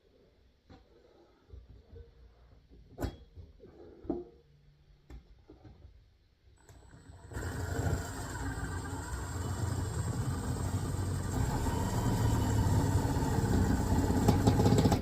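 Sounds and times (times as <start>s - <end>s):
electric motor whining: 6.7s - 15.0s.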